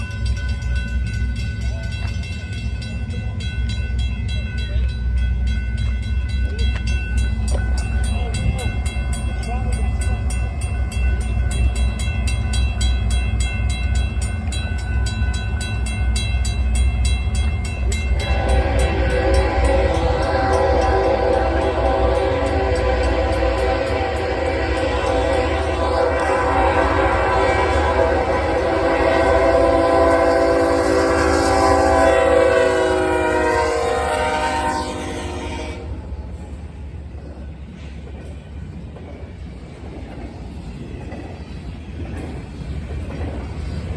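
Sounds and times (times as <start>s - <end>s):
train rumbling by: 0.0s - 43.9s
locomotive air horn chord: 18.1s - 36.1s.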